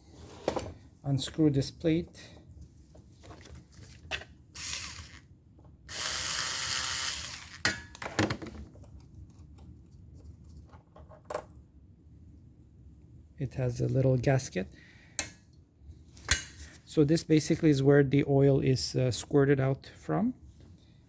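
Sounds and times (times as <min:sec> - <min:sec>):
power screwdriver spinning: 0:04.6 - 0:05.3, 0:05.9 - 0:07.7.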